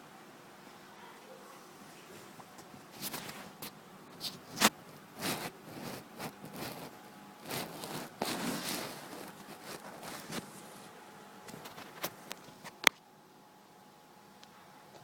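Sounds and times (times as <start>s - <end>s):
rustling and scraping: 1.8s - 12.9s.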